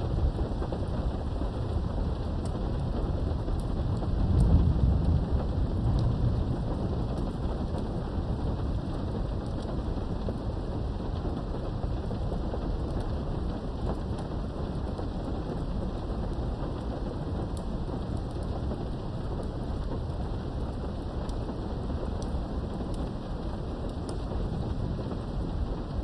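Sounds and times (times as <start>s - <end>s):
thunder rolling: 0.0s - 10.8s
rain heard through window: 0.0s - 26.0s.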